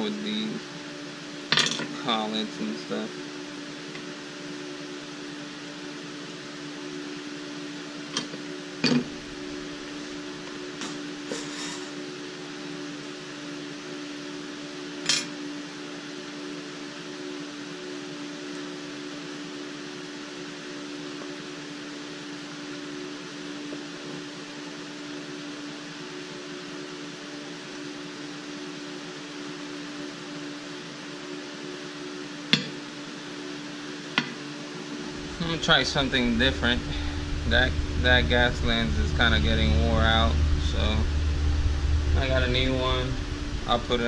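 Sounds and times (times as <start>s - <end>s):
machine hum: 0.0s - 14.3s, 31.6s - 44.0s.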